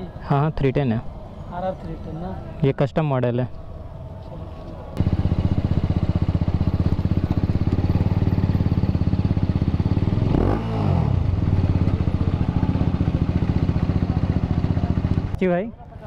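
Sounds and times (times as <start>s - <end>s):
motorcycle engine pulsing: 5.0s - 15.4s.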